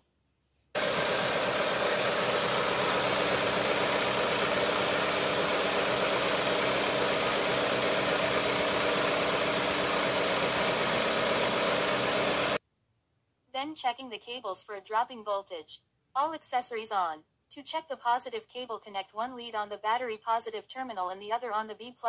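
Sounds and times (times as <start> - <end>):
car engine droning: 0.8 - 12.6.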